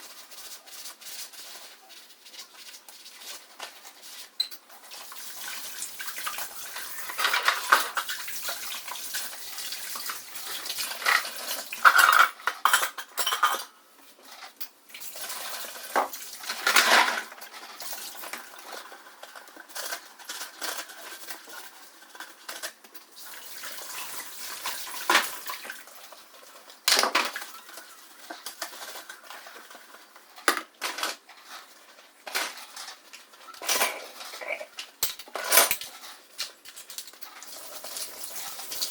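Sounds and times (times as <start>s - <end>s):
dishes clattering: 6.6s - 8.4s, 10.9s - 13.8s, 32.2s - 36.5s.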